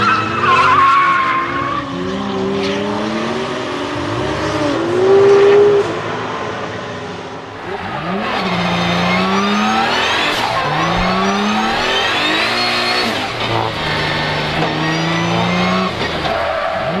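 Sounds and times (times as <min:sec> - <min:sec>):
car engine revving hard: 0:07.8 - 0:17.0.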